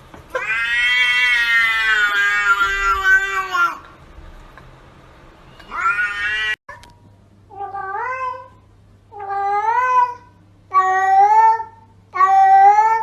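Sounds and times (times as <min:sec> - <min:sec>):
steady low hum: 0:00.0 - 0:13.0
cat meowing: 0:00.4 - 0:03.8, 0:05.6 - 0:06.6, 0:07.5 - 0:13.0.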